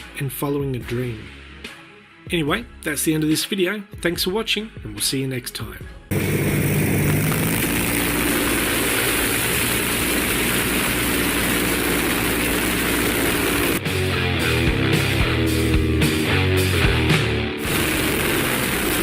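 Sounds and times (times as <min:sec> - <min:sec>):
piston aircraft engine drone: 0:06.1 - 0:13.9, 0:17.5 - 0:19.0.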